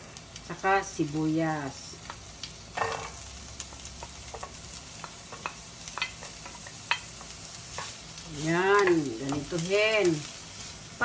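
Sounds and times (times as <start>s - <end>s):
onion sizzling in hot oil: 0.0s - 11.0s
wooden spatula tapping: 8.7s - 9.7s.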